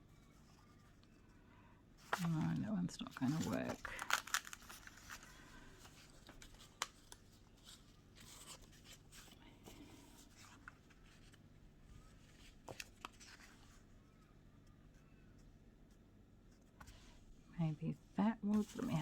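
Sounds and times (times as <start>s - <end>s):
paper rustling: 2.0s - 13.8s, 18.5s - 19.0s.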